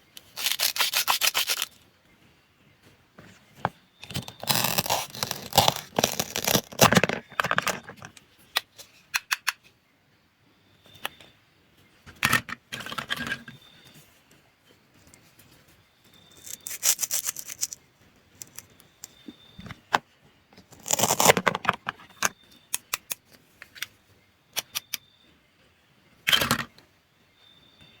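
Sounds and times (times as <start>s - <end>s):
cutting and scraping: 0.2s - 1.8s, 4.0s - 8.0s, 16.4s - 17.8s, 20.7s - 21.7s.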